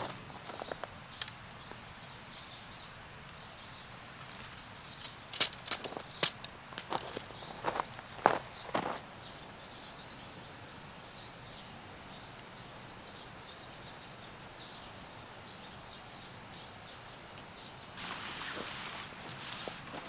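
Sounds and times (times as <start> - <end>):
creek water rushing: 18.0 - 20.0.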